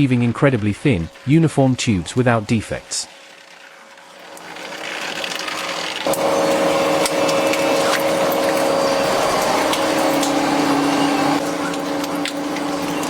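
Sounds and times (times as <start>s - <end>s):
factory machinery whirring: 4.4s - 13.0s.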